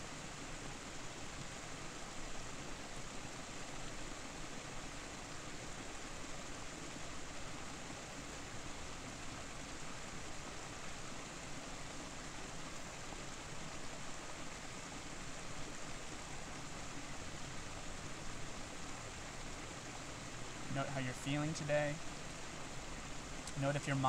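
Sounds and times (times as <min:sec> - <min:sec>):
waterfall rushing: 0:00.1 - 0:24.0.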